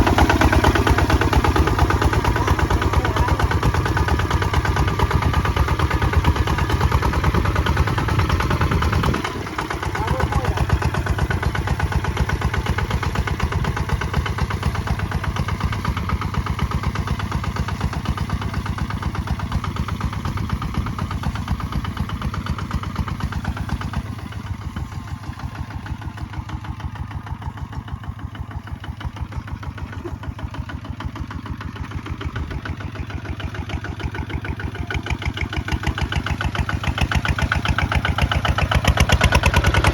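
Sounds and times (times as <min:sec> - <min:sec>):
diesel tractor engine chugging: 0:00.0 - 0:39.9.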